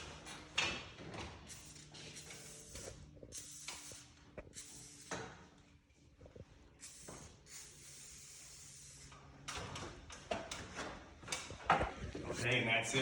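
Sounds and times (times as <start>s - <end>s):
aerosol spray hissing: 1.5s - 5.2s, 6.8s - 9.1s.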